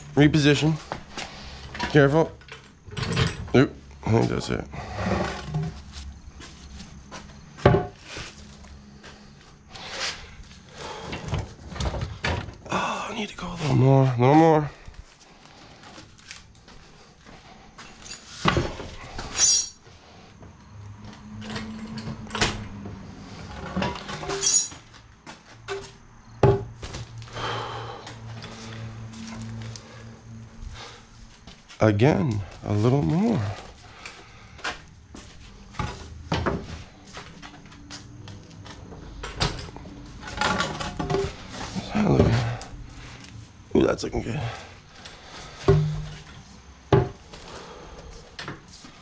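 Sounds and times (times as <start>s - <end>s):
metal clunks and knocks from tools: 1.7s - 3.6s, 7.6s - 8.0s, 25.6s - 26.7s, 35.7s - 36.7s, 39.2s - 42.6s, 45.6s - 47.2s.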